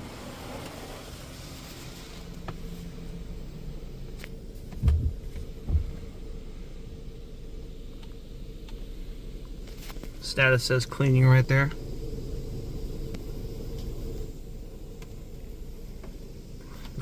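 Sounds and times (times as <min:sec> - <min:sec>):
car wash hum: 0:00.0 - 0:17.0
low thumps: 0:02.4 - 0:06.6.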